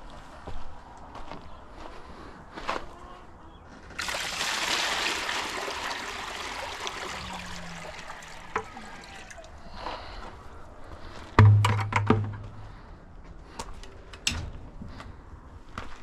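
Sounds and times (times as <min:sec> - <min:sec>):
water pouring into container: 0:04.0 - 0:09.6.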